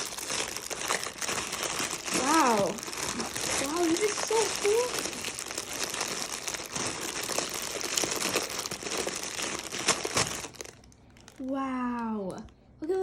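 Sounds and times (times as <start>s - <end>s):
packaging bag crinkling: 0.0s - 11.6s.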